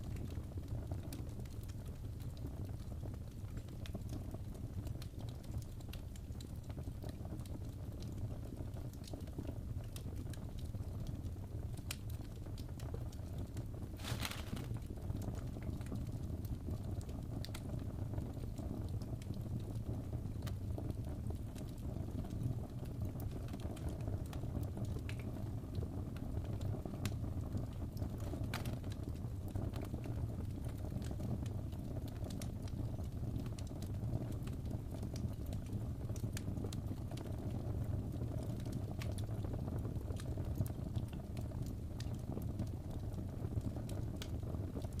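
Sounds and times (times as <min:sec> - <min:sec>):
low rumble of flames: 0:00.0 - 0:45.0
wood fire crackling and popping: 0:00.0 - 0:45.0.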